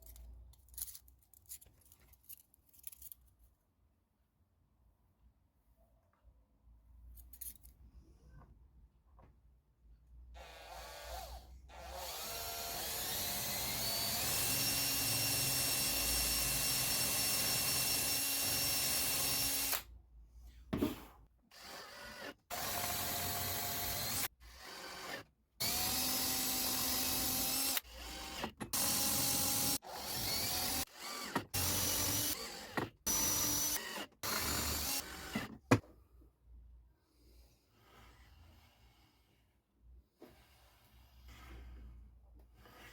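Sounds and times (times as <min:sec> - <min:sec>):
power drill running: 0:10.4 - 0:19.9, 0:21.5 - 0:35.5.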